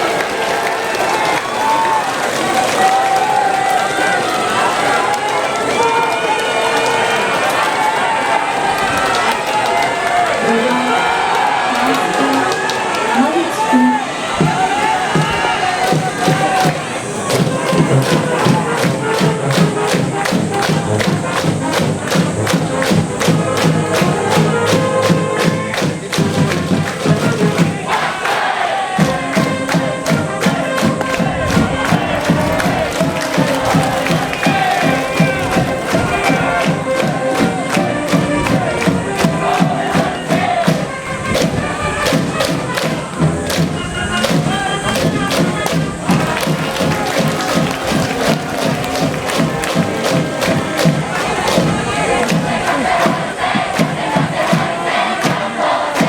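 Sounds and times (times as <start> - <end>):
brass band playing cheer tune: 0.0 - 56.0
quick drum beat: 13.2 - 28.0, 29.0 - 56.0.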